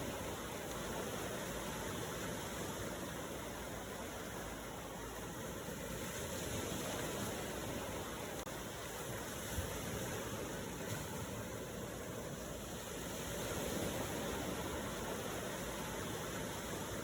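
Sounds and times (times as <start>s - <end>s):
waves rushing: 0.0s - 17.0s.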